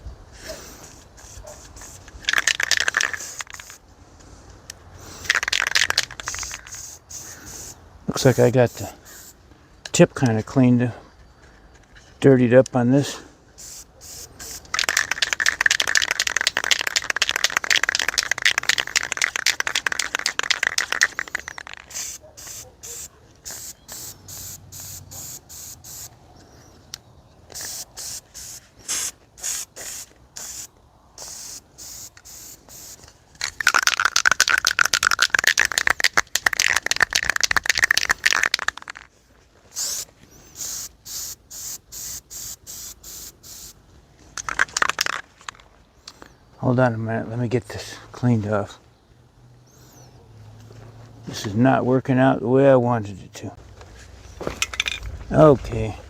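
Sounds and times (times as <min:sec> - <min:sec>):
aerosol spray can hissing: 0:13.6 - 0:18.6, 0:20.4 - 0:26.1, 0:27.6 - 0:33.1, 0:39.8 - 0:43.8.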